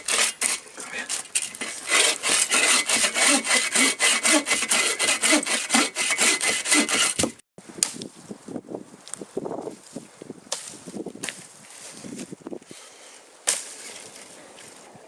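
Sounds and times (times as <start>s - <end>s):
hand saw cutting wood: 0.0s - 7.4s.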